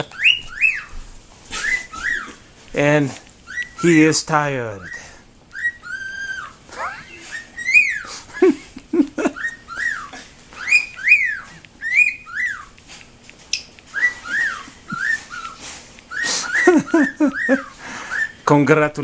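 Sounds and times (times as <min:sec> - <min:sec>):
cockatiel whistled calls: 0:00.0 - 0:02.4, 0:03.4 - 0:04.1, 0:04.8 - 0:08.1, 0:09.4 - 0:12.8, 0:13.5 - 0:18.5.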